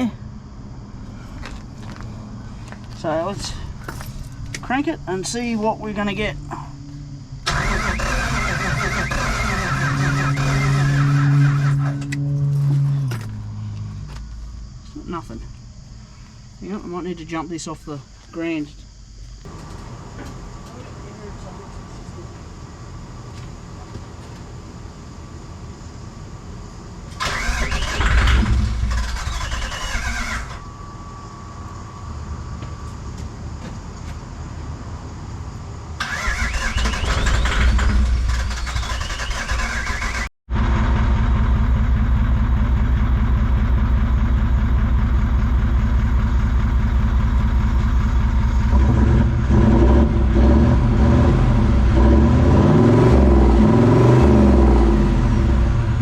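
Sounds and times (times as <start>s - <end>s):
diesel engine idling: 0.0s - 11.3s, 36.0s - 52.0s
engine cranking on starter: 7.4s - 12.2s, 27.1s - 30.6s, 36.0s - 41.3s.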